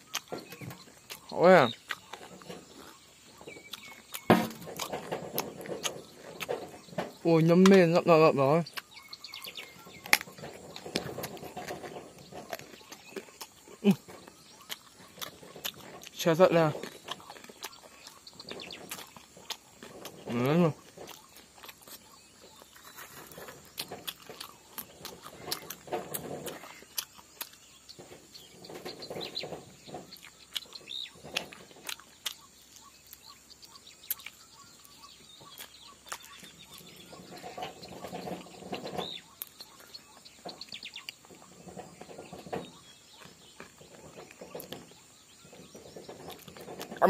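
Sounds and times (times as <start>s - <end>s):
mouth clicks and smacks: 0.0s - 6.9s, 8.6s - 22.8s, 29.1s - 39.9s
person chewing: 0.0s - 6.9s, 8.6s - 29.3s, 30.0s - 41.5s, 42.7s - 44.8s, 46.1s - 47.0s.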